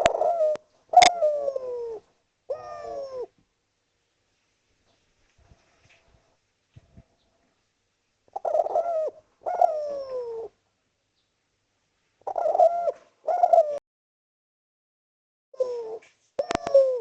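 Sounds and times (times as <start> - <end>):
dove cooing: 0.0 - 3.4, 8.3 - 10.6, 12.2 - 13.8, 15.6 - 17.0.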